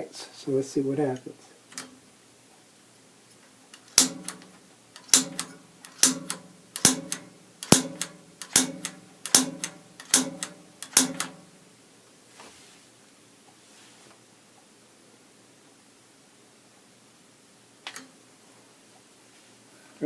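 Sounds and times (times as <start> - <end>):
piezo igniter snapping: 3.7 - 11.4.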